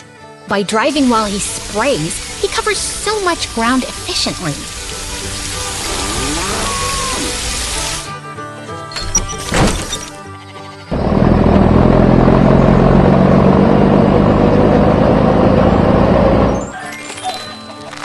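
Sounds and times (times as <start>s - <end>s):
cartoon background music: 0.0s - 11.0s, 16.5s - 18.0s.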